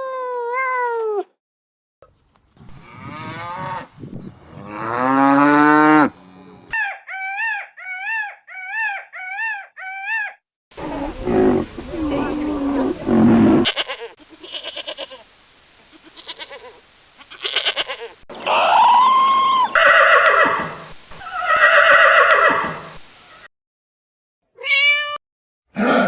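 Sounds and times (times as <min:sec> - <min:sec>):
animal calls: 0:02.7 - 0:13.7
rising and falling animal call: 0:02.7 - 0:13.7, 0:18.3 - 0:22.9.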